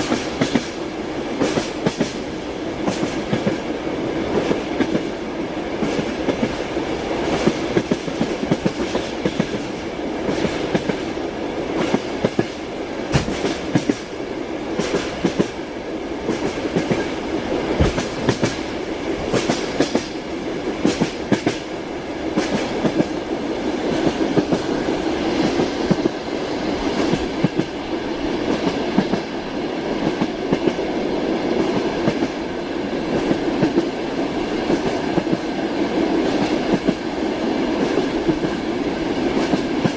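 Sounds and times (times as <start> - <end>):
train carriage rumble: 0.0 - 39.9.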